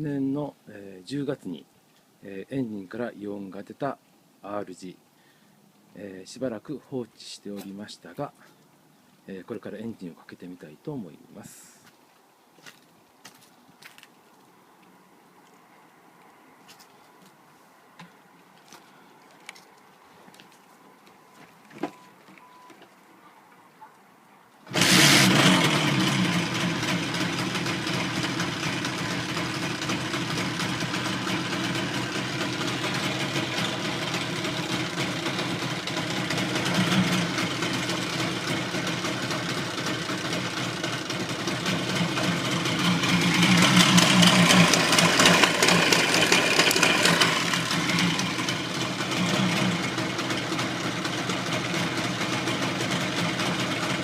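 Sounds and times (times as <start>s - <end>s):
motorcycle engine idling and revving: 24.7s - 54.0s.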